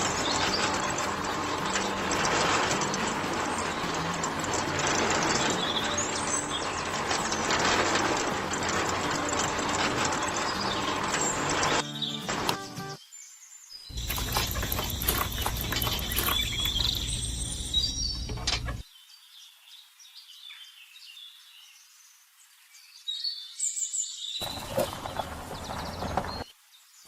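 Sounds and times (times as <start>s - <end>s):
birds chirping: 0.0s - 19.1s, 23.8s - 26.5s
outdoor background noise: 0.0s - 27.0s.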